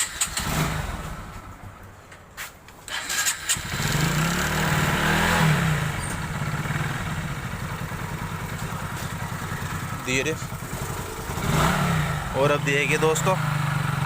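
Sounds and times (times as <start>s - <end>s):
motorcycle engine starting and idling: 0.0s - 14.0s.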